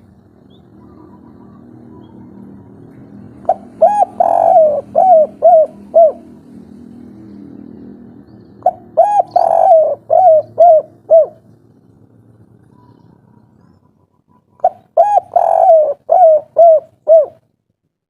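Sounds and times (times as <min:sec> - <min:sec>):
dove cooing: 0:00.4 - 0:06.4, 0:08.6 - 0:11.5, 0:14.3 - 0:17.5.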